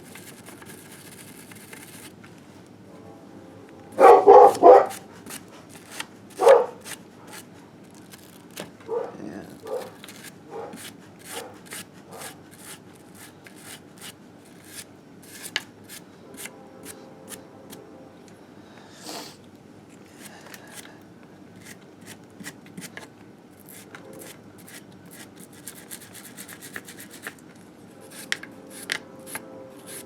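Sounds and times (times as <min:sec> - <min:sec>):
dog barking: 0:04.0 - 0:05.1, 0:06.4 - 0:06.8, 0:08.9 - 0:12.4.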